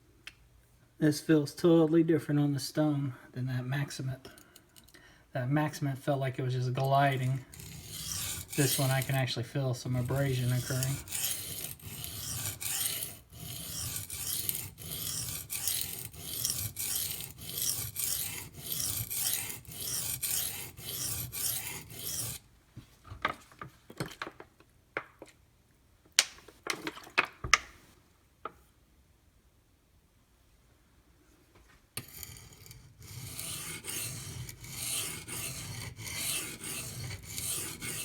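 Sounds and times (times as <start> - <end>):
knife grinding on whetstone: 7.1 - 22.4, 32.0 - 38.0.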